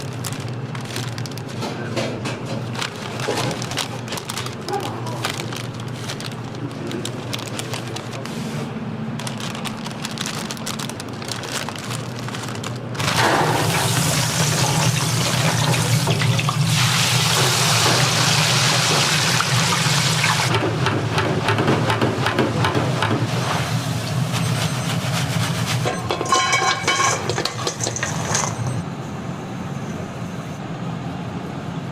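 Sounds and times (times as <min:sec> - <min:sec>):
oil crackling and popping: 0:00.0 - 0:01.6, 0:09.2 - 0:20.5.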